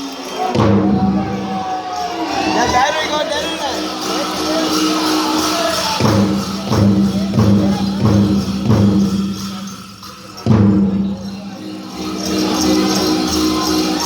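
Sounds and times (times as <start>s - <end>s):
jingling bells: 0.0s - 14.0s
big drum beats: 0.4s - 2.1s, 4.0s - 13.7s
drum group singing: 0.5s - 1.8s, 4.3s - 9.4s.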